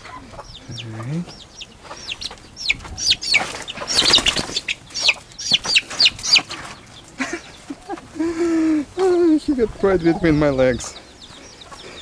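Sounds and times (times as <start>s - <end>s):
baby chicks peeping: 0.0s - 12.0s
rustling or flapping: 2.8s - 7.3s.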